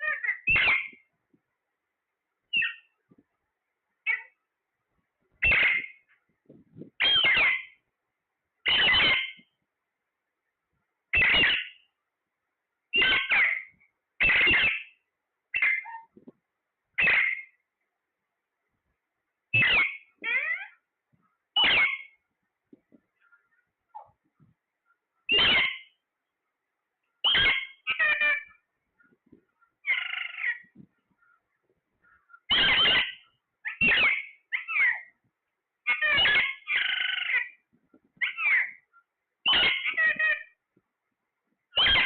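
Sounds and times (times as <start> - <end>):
parrot harsh calls: 0.0 - 1.1, 2.5 - 2.9, 4.0 - 4.4, 5.4 - 6.1, 7.0 - 7.8, 8.6 - 9.5, 11.1 - 11.9, 12.9 - 16.1, 17.0 - 17.6, 19.5 - 20.8, 21.6 - 22.2, 25.3 - 26.0, 27.2 - 28.7, 29.8 - 30.7, 32.2 - 35.2, 35.8 - 37.6, 38.2 - 40.6, 41.8 - 42.0.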